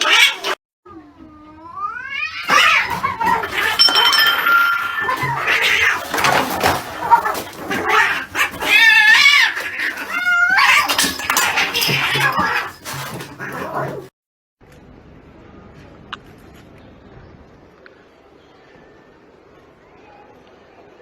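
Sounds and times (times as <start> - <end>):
cats yowling in a fight: 0.0 - 14.1.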